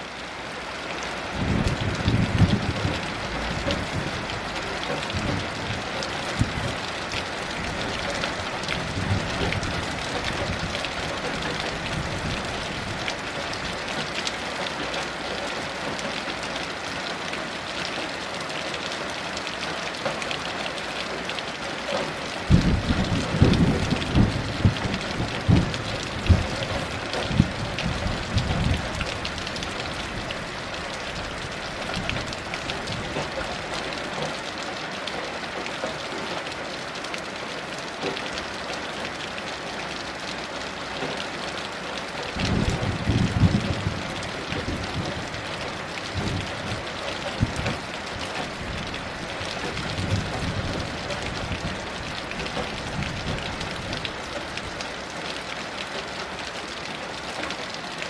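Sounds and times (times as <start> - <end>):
heavy rain hissing: 0.0 - 58.0
thunder cracks and rumbles: 22.5 - 29.0, 42.4 - 45.3, 46.1 - 47.8.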